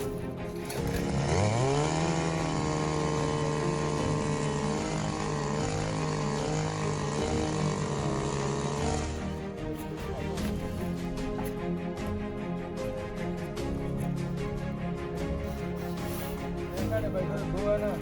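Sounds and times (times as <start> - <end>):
small engine running at high speed: 0.0 - 12.2.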